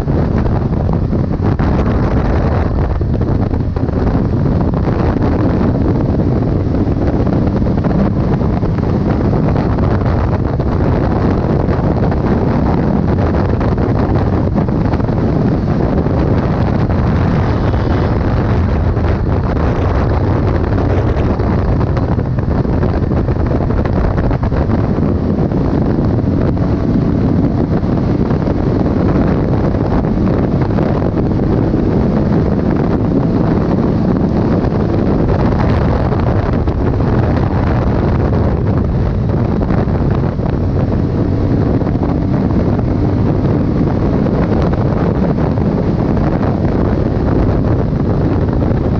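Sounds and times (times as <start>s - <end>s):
vehicle rumble: 0.0s - 48.9s
wind buffeting microphone: 0.0s - 48.9s.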